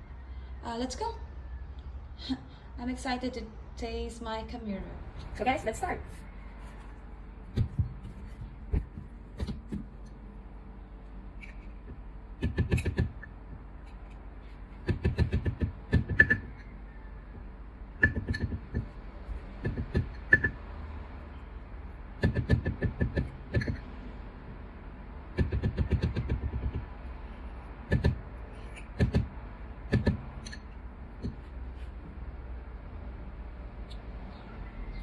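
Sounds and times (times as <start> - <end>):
faint hum: 0.0 - 35.0
coffee gear knocking and clattering: 11.4 - 14.2, 18.0 - 18.9.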